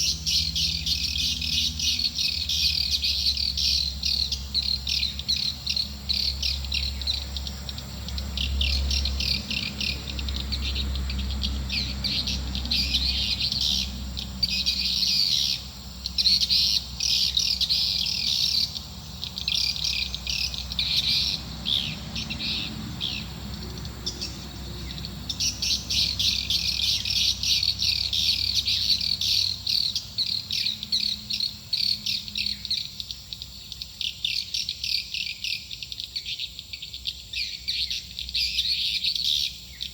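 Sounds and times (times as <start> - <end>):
rapid high bird twittering: 0.0 - 39.9.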